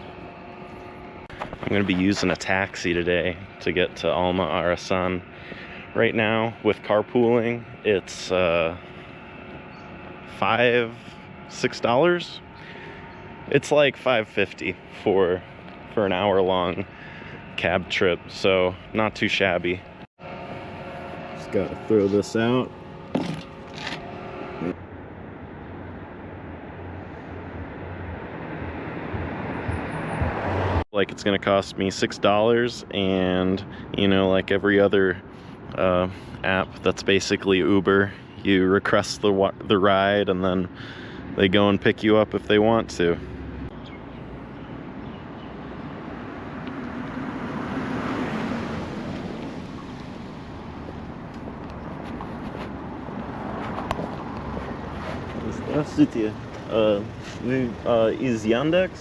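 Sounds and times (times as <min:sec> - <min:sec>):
low traffic rumble: 0:00.0 - 0:59.0
motor vehicle passing by: 0:25.7 - 0:30.8, 0:43.1 - 0:59.0.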